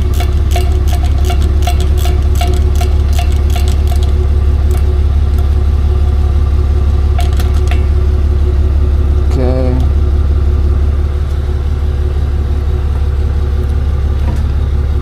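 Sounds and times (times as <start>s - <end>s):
quick clicks: 0.0s - 5.5s
truck engine rumbling: 0.0s - 15.0s.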